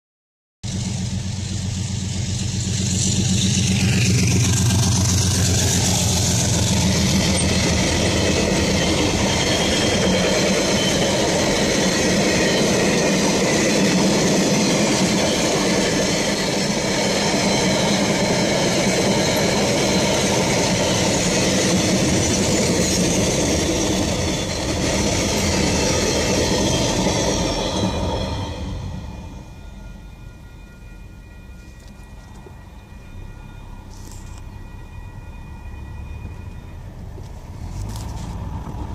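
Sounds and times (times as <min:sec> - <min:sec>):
low engine drone: 0:00.6 - 0:09.3
train wagons rumbling past: 0:00.6 - 0:38.9.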